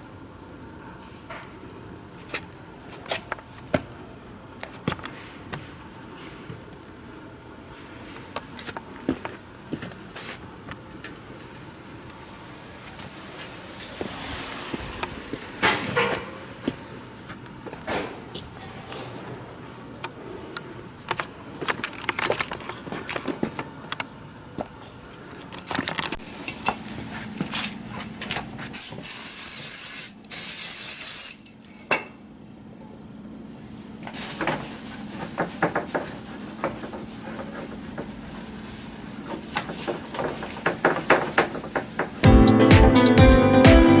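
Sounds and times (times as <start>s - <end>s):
aerosol can spraying: 28.8s - 31.4s.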